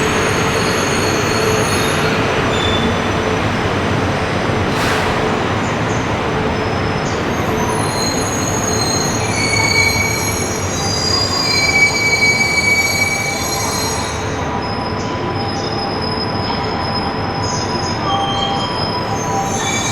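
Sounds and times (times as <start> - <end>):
train rumbling past: 0.0 - 19.9
wind buffeting microphone: 3.0 - 8.1
high-pitched wheel squeals: 7.3 - 19.9.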